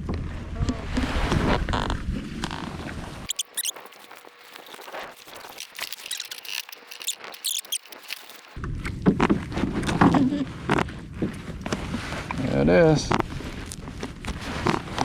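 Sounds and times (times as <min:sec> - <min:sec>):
wind and water noise: 0:00.0 - 0:15.0
high-pitched squeaks: 0:03.3 - 0:08.6
sharp clicks: 0:03.3 - 0:08.6.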